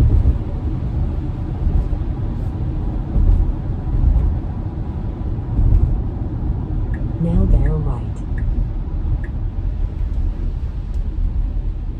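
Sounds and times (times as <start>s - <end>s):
tyre rumble on wet road: 0.0s - 6.9s.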